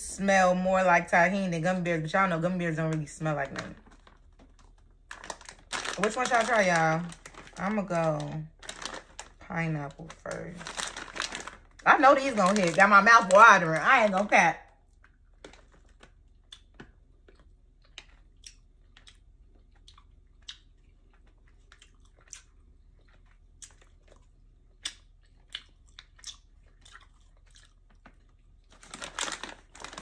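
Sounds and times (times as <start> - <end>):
person chewing gummy candy: 14.7 - 30.0.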